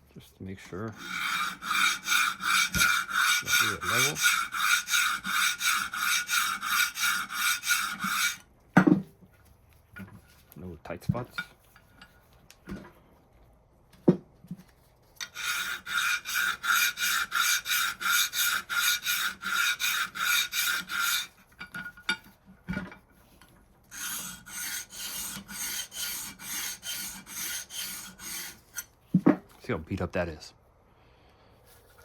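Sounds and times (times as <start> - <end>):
file rasping on metal: 0.7 - 8.4, 15.2 - 22.2, 23.9 - 28.9.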